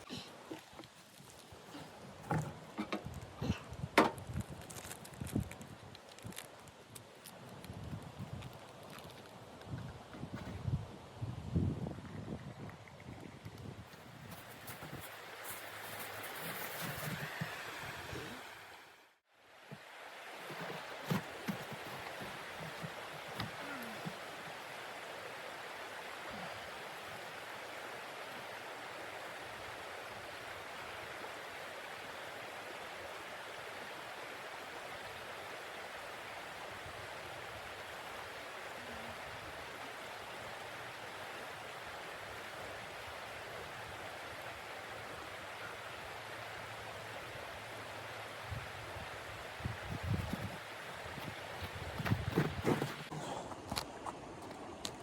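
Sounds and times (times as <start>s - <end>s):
steady rushing hiss: 13.9s - 32.8s.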